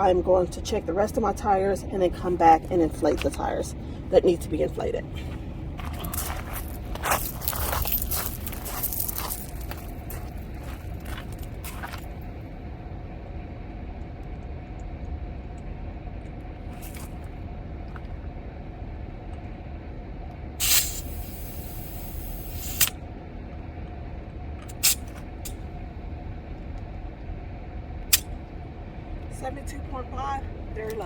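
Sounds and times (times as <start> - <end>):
steady low hum: 0.0 - 31.0
air hissing from tire valve: 20.6 - 22.9, 24.7 - 25.2.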